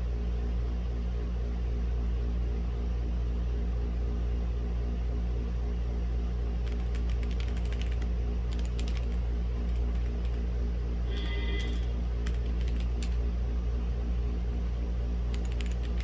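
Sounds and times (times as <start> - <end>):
steady low hum: 5.8 - 16.0
typing on mechanical keyboard: 6.4 - 10.4, 11.1 - 13.2, 15.3 - 16.0.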